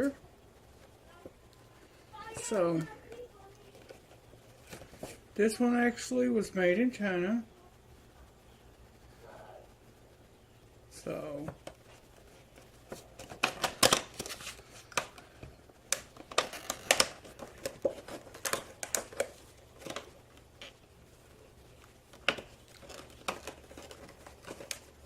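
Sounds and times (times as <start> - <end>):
packaging crinkling and tearing: 12.3 - 20.8, 21.8 - 25.0.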